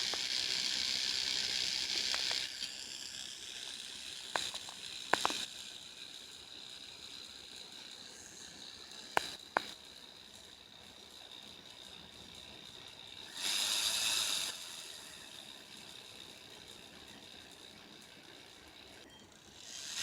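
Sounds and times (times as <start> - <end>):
burr grinding: 0.0 - 20.0
high-speed handpiece whine: 0.0 - 20.0
sharp clicks: 1.9 - 2.7, 4.3 - 5.5, 9.0 - 9.8.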